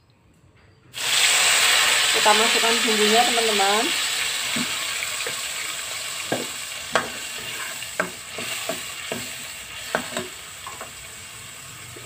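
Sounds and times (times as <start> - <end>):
spice paste sizzling in oil: 1.0 - 12.0
metal ladle scraping a wok: 6.3 - 12.0.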